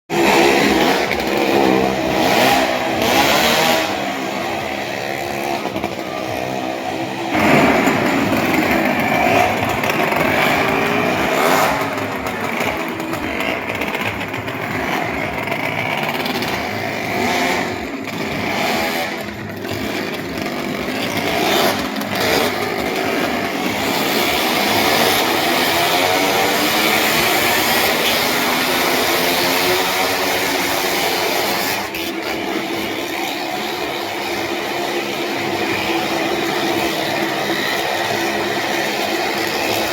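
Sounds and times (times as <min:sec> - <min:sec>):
motorcycle engines revving: 0:00.1 - 0:39.9.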